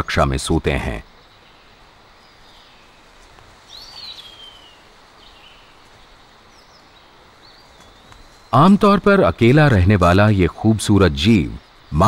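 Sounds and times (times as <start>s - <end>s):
steady low hiss: 0.0s - 12.0s
short bird calls: 1.1s - 9.5s.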